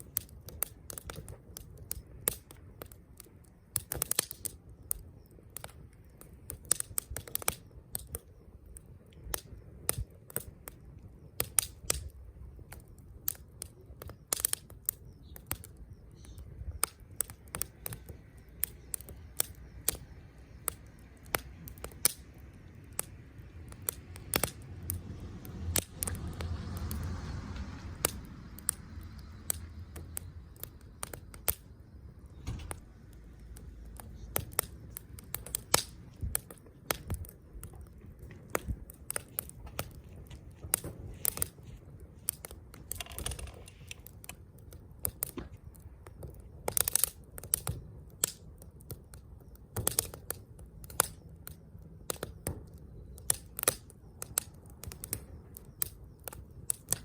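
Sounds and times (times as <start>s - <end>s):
hissing flame: 0.0s - 57.0s
wood fire crackling: 0.0s - 57.0s.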